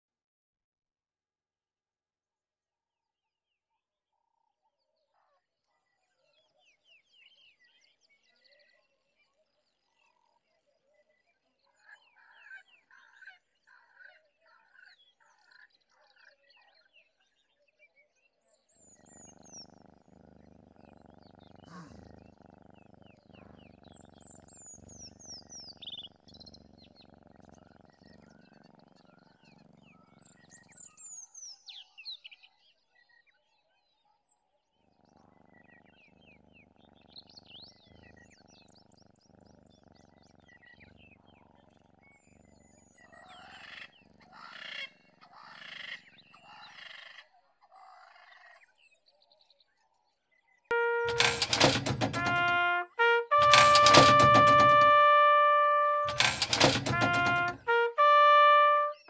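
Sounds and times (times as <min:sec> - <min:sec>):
wild birdsong: 0:18.8 - 0:32.2, 0:34.9 - 0:46.8.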